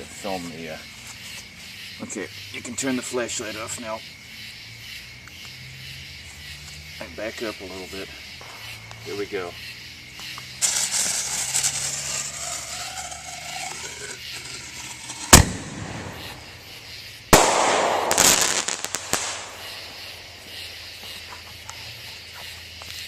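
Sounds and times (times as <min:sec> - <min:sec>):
firework crackling: 0:07.3 - 0:23.0
fuse hissing: 0:10.2 - 0:17.0
firework shell launching bang: 0:10.6 - 0:16.6, 0:17.3 - 0:20.2
firework bursting bang: 0:10.6 - 0:20.7.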